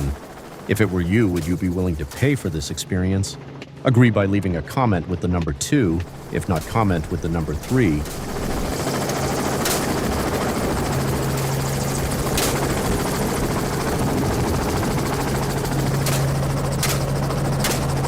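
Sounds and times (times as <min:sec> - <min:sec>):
helicopter humming: 0:00.0 - 0:18.0
short sharp cracks: 0:16.0 - 0:18.0.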